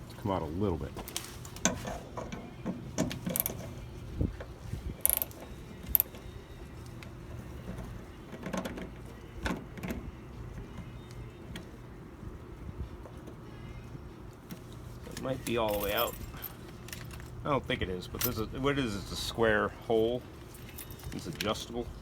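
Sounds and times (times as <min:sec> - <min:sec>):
metallic tool clicks and knocks: 0:03.3 - 0:03.7, 0:05.1 - 0:06.1.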